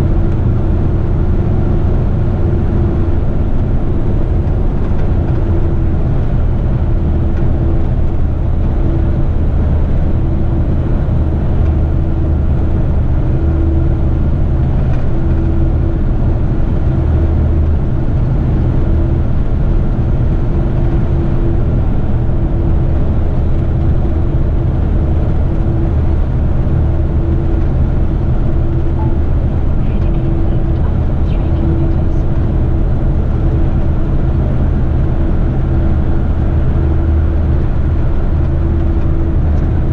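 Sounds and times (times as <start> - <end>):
steady hum: 0.0 - 39.9
truck engine droning: 0.0 - 39.9.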